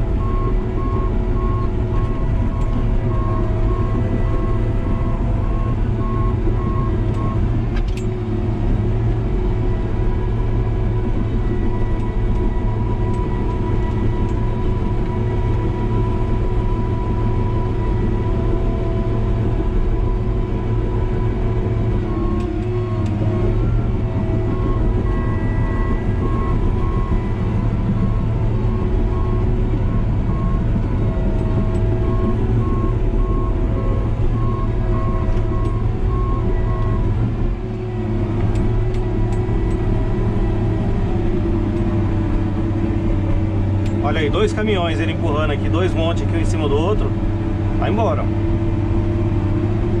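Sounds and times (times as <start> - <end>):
diesel engine running under load: 0.0 - 50.0
reversing alarm beeping: 0.2 - 7.4, 11.0 - 42.2.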